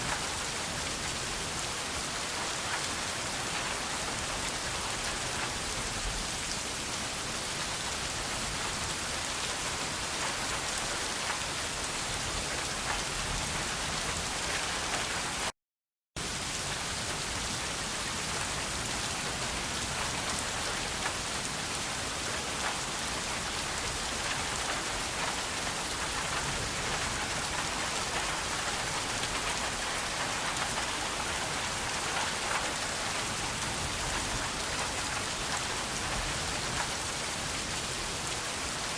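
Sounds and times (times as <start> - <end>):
rain falling on a surface: 0.0 - 15.5, 16.2 - 38.9.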